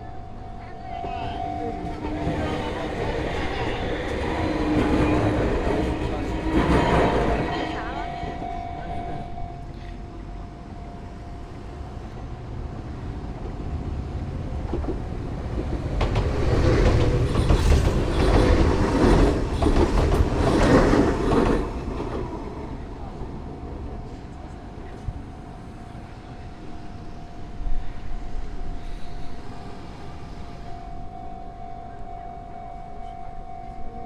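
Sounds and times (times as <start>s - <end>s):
train wheels clacking over rail joints: 14.6s - 22.5s.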